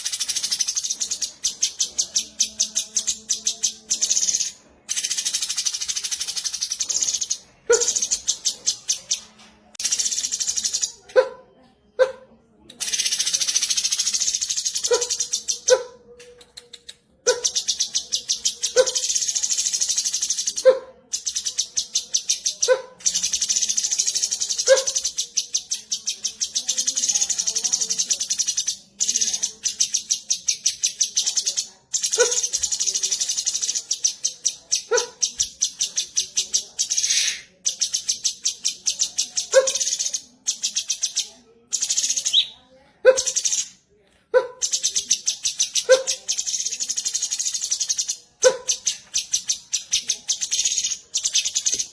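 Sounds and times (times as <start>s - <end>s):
bulbul song: 0.0s - 11.1s, 21.2s - 42.6s.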